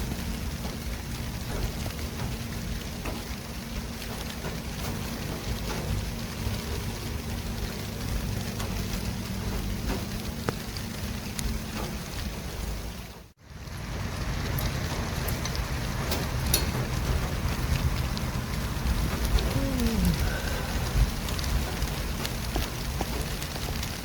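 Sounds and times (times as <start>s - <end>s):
road noise from passing vehicles: 0.0s - 24.0s
low rumble: 13.4s - 24.0s.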